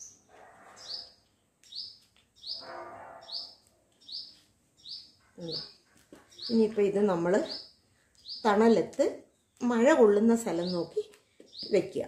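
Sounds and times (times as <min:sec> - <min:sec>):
bird chirping: 0:00.0 - 0:12.0
hands rustling potting soil: 0:05.4 - 0:07.4.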